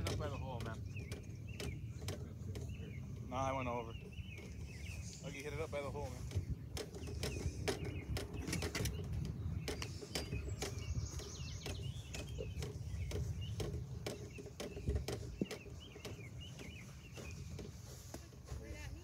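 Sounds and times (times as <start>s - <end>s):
songbirds chirping and singing: 0.0s - 19.0s
sharp clicks: 6.3s - 16.7s.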